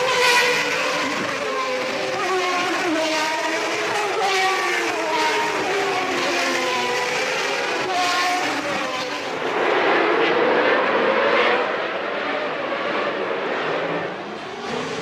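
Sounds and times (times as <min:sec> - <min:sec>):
racing car engines at high revs: 0:00.0 - 0:15.0
racing car passing close: 0:00.0 - 0:15.0.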